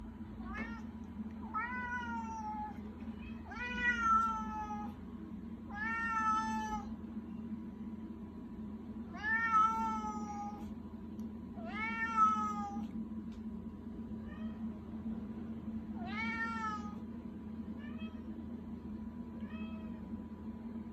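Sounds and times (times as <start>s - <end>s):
steady low hum: 0.0s - 20.9s
cat meowing: 1.5s - 5.0s.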